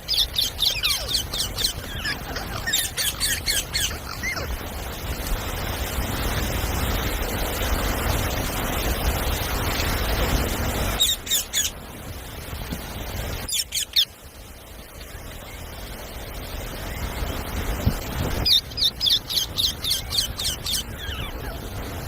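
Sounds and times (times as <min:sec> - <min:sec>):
steady background hiss: 0:00.0 - 0:22.0
parrot screeching: 0:00.1 - 0:04.5.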